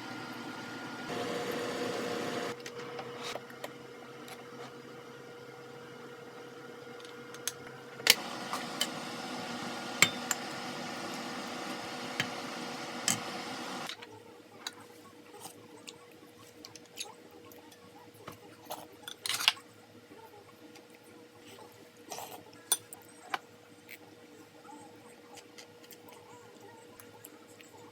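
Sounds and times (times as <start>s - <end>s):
kitchenware clinking and knocking: 10.0s - 10.4s.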